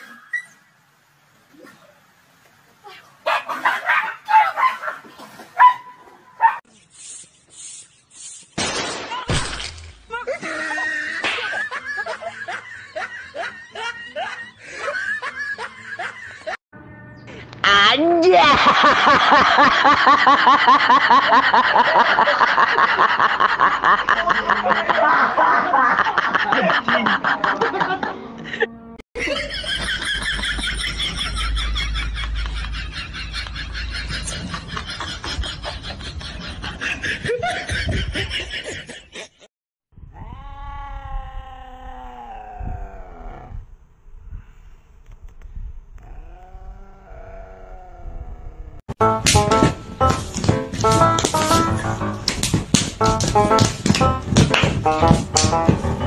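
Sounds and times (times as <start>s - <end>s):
loud laughter: 10.3s - 16.6s, 18.2s - 39.5s.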